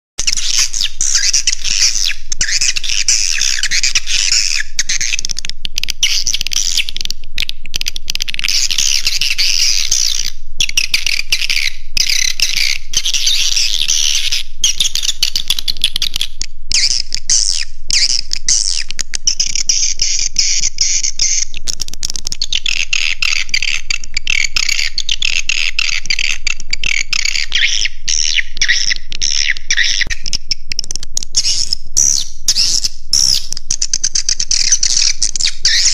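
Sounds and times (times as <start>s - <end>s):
swiftlets chirping and twittering: 0.2s - 5.4s, 8.2s - 21.5s, 31.4s - 35.9s.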